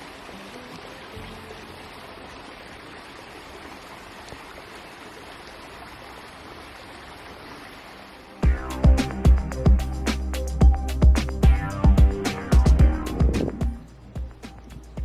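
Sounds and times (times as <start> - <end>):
stream water rushing: 0.0 - 15.0
music with strong beat: 8.4 - 15.0.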